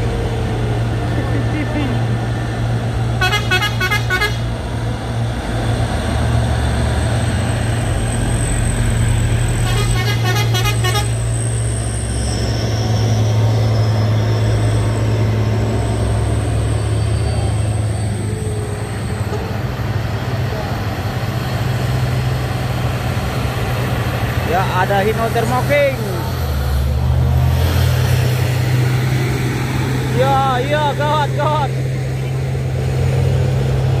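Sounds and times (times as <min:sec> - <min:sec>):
truck diesel engine droning: 0:00.0 - 0:34.0
pulsing horn toots: 0:03.1 - 0:04.6, 0:09.4 - 0:11.7.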